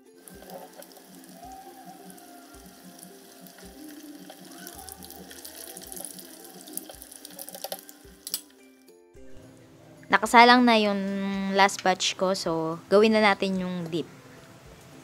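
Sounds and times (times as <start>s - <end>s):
food sizzling in oil: 0.0s - 8.7s
soft background music: 0.0s - 15.0s
tongs clicking against pan: 6.8s - 8.5s.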